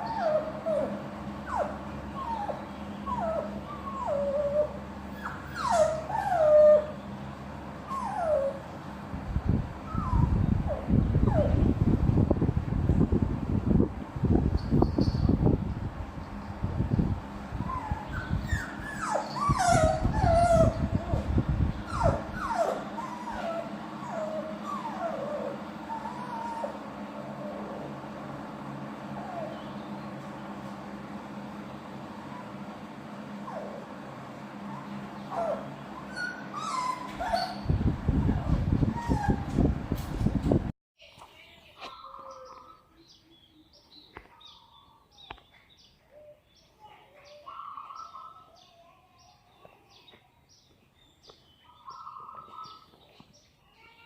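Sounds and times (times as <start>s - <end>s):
dog whining: 0.0s - 7.0s, 7.8s - 8.7s, 9.8s - 11.6s, 17.6s - 28.0s, 29.1s - 29.8s, 33.4s - 33.9s, 34.6s - 39.6s.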